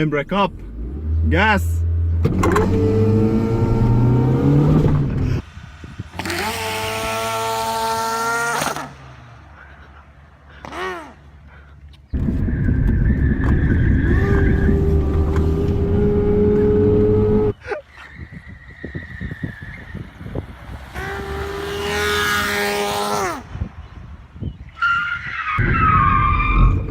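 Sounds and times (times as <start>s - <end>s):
car engine revving hard: 0.6s - 5.4s, 6.2s - 9.2s, 14.0s - 17.5s, 20.7s - 23.5s.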